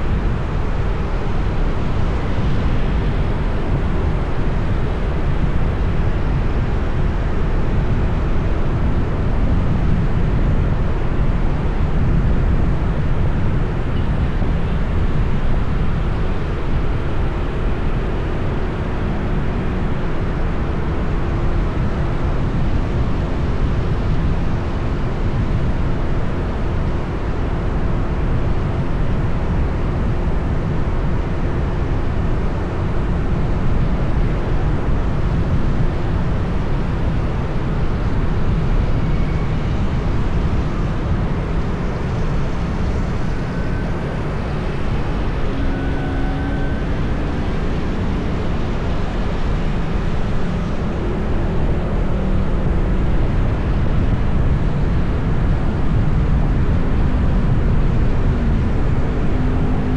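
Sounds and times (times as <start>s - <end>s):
city traffic rumble: 0.0s - 59.9s.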